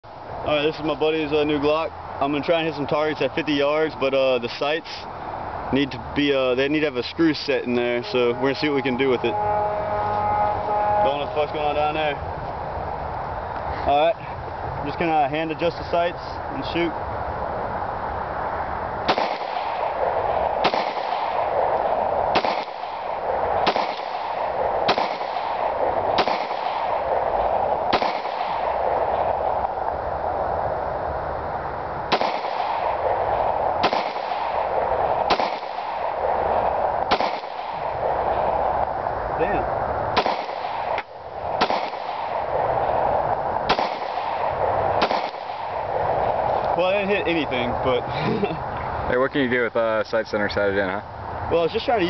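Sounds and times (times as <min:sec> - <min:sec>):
background hiss: 0:00.1 - 0:52.0
pistol shots: 0:19.1 - 0:29.6, 0:32.1 - 0:38.6, 0:40.2 - 0:46.0.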